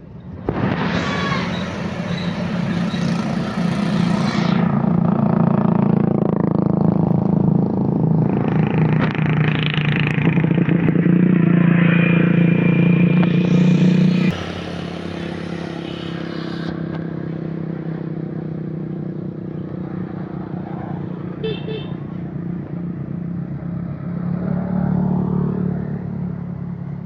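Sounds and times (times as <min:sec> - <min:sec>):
vehicle engine running: 0:01.4 - 0:20.0.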